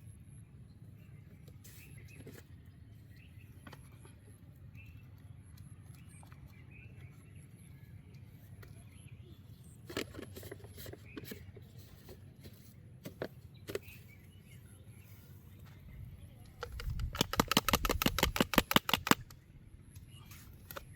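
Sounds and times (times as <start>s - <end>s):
low outdoor rumble: 0.0s - 18.4s, 19.2s - 20.9s
sharp clicks or knocks: 16.6s - 19.4s.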